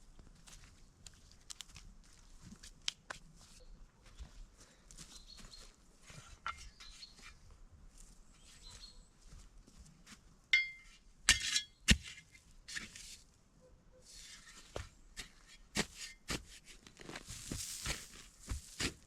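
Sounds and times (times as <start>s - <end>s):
rustling: 16.9s - 19.0s.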